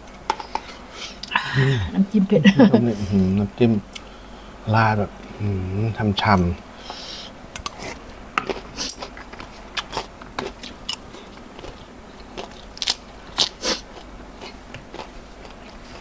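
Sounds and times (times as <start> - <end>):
crunching crispy fried food: 8.4 - 16.0.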